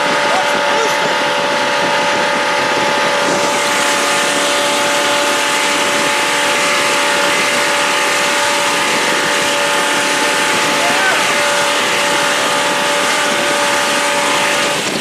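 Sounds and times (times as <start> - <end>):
jet boat engine whine: 0.0 - 15.0
water rushing noise: 0.0 - 15.0.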